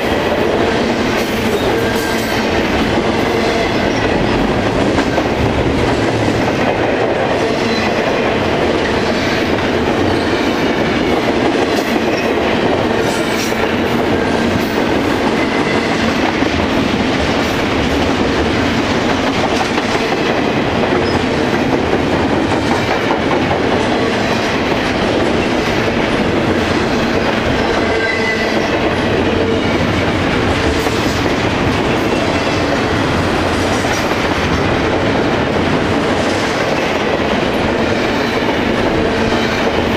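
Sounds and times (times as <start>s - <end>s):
freight train wheels clattering: 0.0s - 39.9s.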